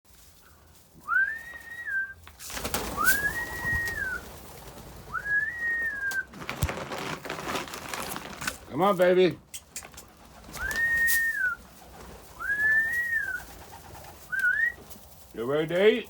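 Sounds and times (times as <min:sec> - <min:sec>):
rustling clattering noise: 0:00.1 - 0:16.0
person whistling calls: 0:01.0 - 0:02.2, 0:02.9 - 0:04.2, 0:05.1 - 0:06.3, 0:10.6 - 0:11.6, 0:12.4 - 0:13.4, 0:14.3 - 0:14.8.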